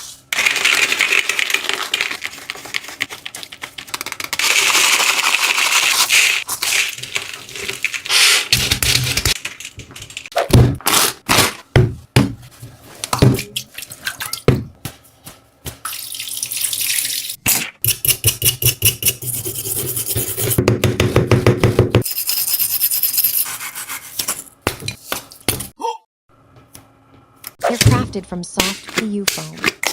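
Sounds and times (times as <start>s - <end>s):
rapid crackling squishes: 0.4s - 9.6s.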